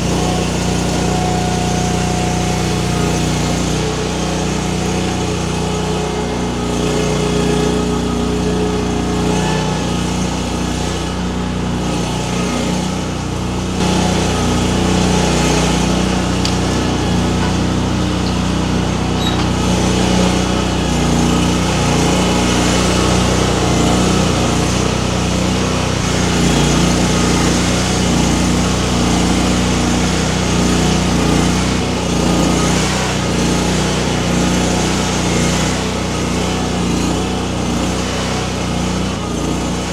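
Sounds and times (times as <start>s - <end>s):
skid steer engine running: 0.0s - 39.9s
grapple working: 13.3s - 30.0s.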